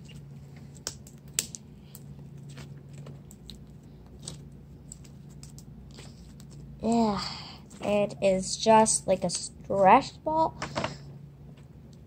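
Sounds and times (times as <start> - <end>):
hands squishing slime: 0.0 - 7.1
steady low hum: 0.0 - 12.0.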